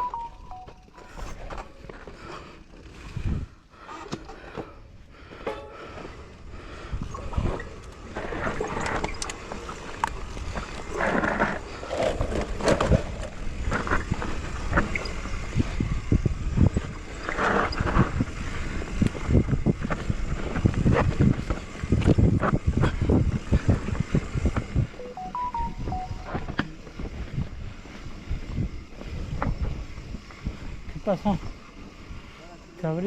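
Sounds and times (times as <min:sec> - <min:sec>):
bicycle rattling over bumpy trail: 0:00.8 - 0:25.0, 0:26.7 - 0:33.0.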